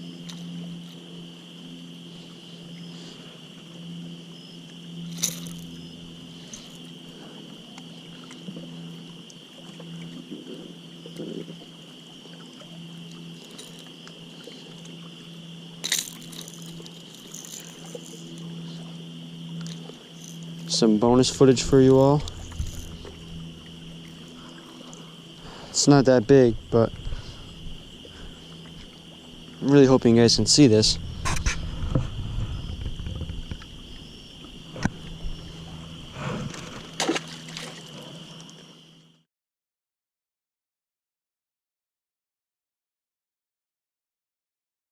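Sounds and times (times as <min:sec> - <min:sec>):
insects chirring: 0:00.0 - 0:39.2
low steady hum: 0:00.0 - 0:39.2
water sloshing: 0:04.7 - 0:38.7
high-pitched buzz: 0:29.8 - 0:37.7.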